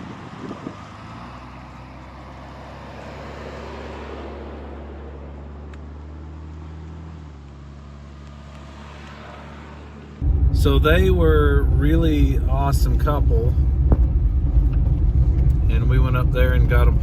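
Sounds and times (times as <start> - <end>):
road noise: 0.0 - 17.0
vehicle engine hum: 0.0 - 17.0.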